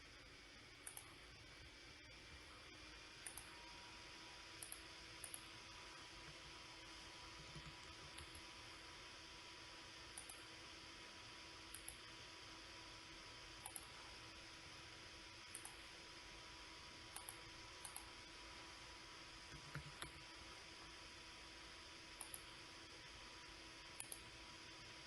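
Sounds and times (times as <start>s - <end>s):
faint steady hiss and hum: 0.0s - 25.0s
computer mouse clicking: 0.8s - 1.2s, 3.2s - 3.6s, 4.6s - 5.5s, 7.3s - 8.5s, 10.1s - 10.5s, 11.7s - 12.1s, 13.6s - 14.0s, 15.4s - 15.9s, 17.1s - 18.2s, 19.5s - 20.3s, 22.2s - 22.6s, 24.0s - 24.3s.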